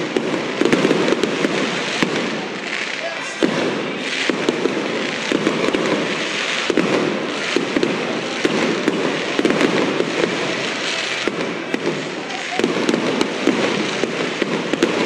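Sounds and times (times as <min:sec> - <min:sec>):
fireworks bangs: 0:00.0 - 0:15.0
fireworks crackling: 0:00.0 - 0:15.0.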